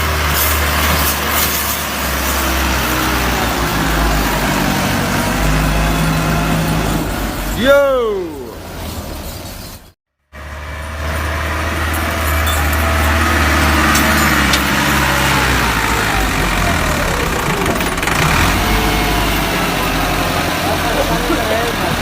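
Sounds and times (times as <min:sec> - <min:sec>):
diesel tractor engine running: 0:10.4 - 0:22.0.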